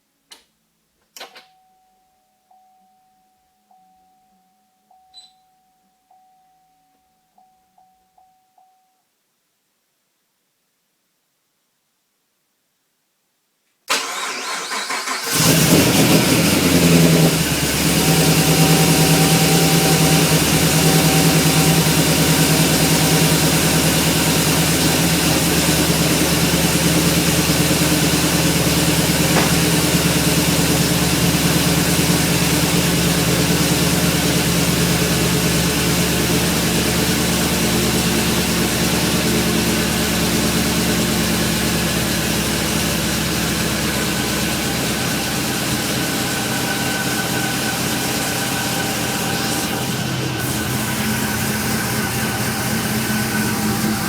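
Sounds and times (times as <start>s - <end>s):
starter motor cranking: 13.9s - 34.7s
car engine starting and idling: 13.9s - 54.0s.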